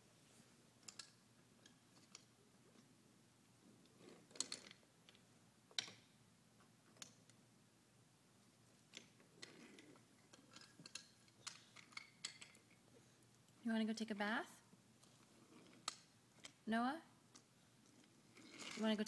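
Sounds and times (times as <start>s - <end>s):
toy train pieces clicking: 0.8s - 2.3s, 8.9s - 12.8s.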